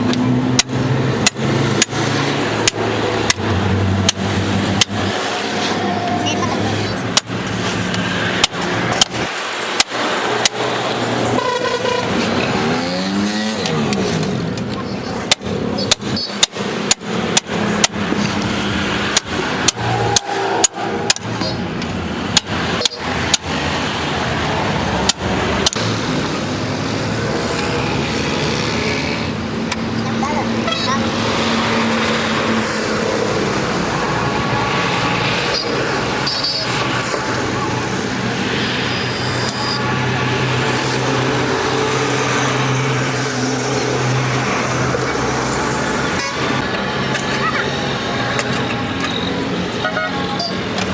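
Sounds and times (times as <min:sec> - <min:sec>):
loud mechanical noise with hum: 0:00.0 - 0:50.9
steady background noise: 0:00.0 - 0:50.9
sharp clicks: 0:00.1 - 0:05.1, 0:13.6 - 0:23.6, 0:25.0 - 0:25.9, 0:35.5 - 0:38.2.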